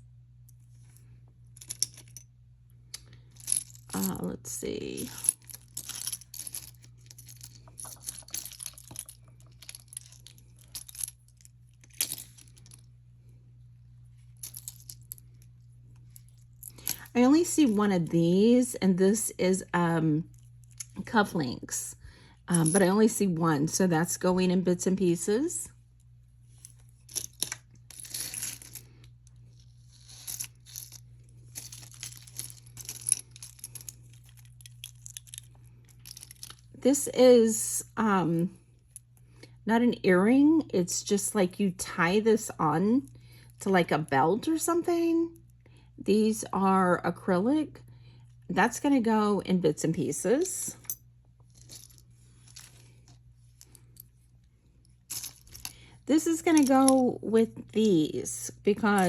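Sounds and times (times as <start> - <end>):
low steady hum: 0.0 - 59.0
jewelry clinking and rattling: 0.5 - 13.1, 14.0 - 17.9, 22.4 - 23.9, 26.1 - 36.8, 50.6 - 59.0.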